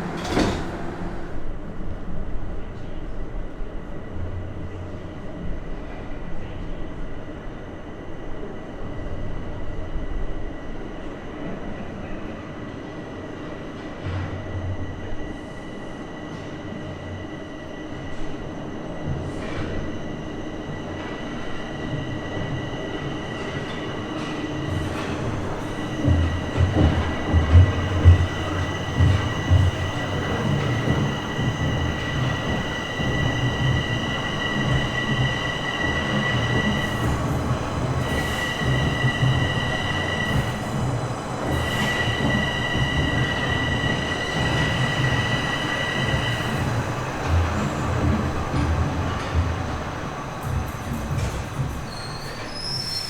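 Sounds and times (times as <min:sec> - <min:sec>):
heavy train knocks: 0:00.0 - 0:01.4, 0:24.2 - 0:52.8
subway train high whine: 0:00.0 - 0:53.0.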